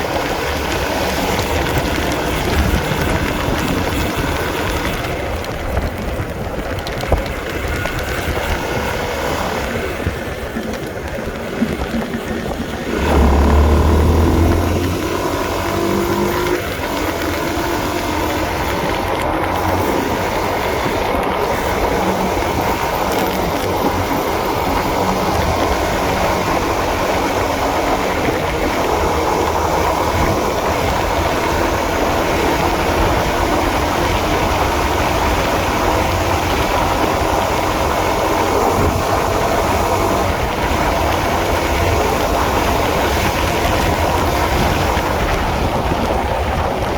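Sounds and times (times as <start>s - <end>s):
motorcycle engine running: 0.0s - 46.9s
wind and road noise: 0.0s - 46.9s.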